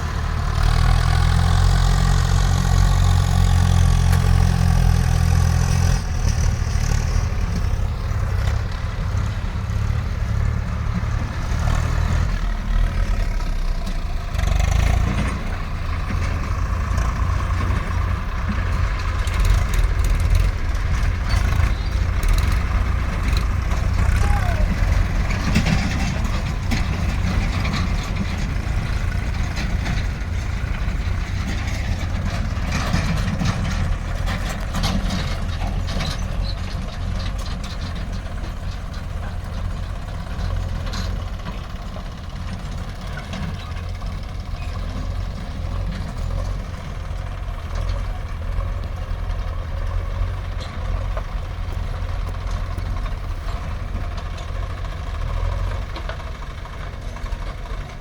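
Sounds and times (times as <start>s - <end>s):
diesel engine rumbling: 0.0s - 58.0s
clattering and knocking: 14.4s - 24.1s, 24.8s - 57.9s.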